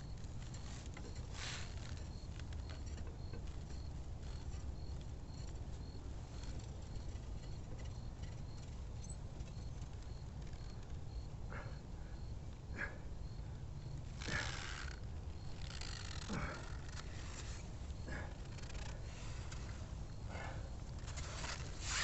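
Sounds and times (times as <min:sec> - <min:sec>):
faint high chirp: 0:00.0 - 0:12.4
short scratchy rasps: 0:14.1 - 0:22.0.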